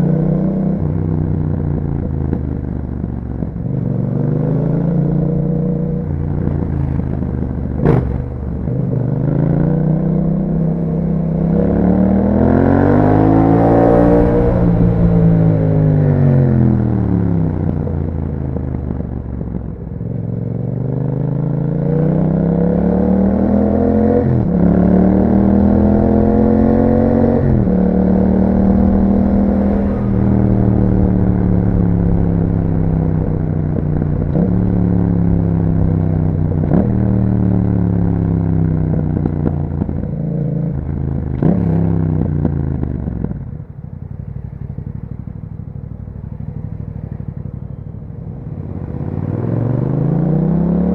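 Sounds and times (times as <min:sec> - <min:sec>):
motorcycle engine accelerating: 0:00.0 - 0:50.9
throttle blips on downshifts: 0:21.0 - 0:50.9.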